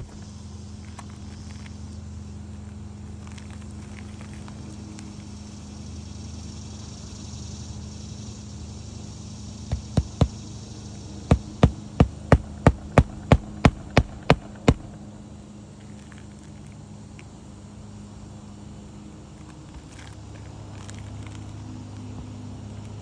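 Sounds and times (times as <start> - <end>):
steady low hum: 8.5 - 15.7
hammer knocking on roof: 9.7 - 10.4, 11.3 - 15.0.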